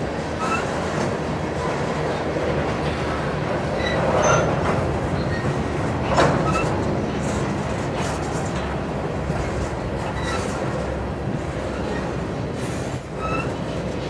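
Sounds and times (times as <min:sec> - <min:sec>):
freight train wheels rumbling: 0:00.0 - 0:14.0
wheel squeals: 0:00.4 - 0:00.8, 0:03.7 - 0:07.4, 0:09.4 - 0:10.8, 0:11.6 - 0:13.8.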